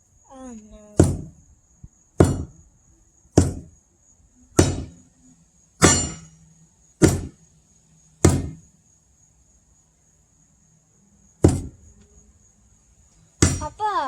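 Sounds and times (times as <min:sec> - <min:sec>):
sledgehammer striking steel wedge: 0:01.0 - 0:01.3, 0:02.2 - 0:02.6, 0:03.4 - 0:03.7, 0:04.6 - 0:05.0, 0:05.8 - 0:06.4, 0:07.0 - 0:07.4, 0:08.2 - 0:08.6, 0:11.4 - 0:11.8, 0:13.4 - 0:13.8.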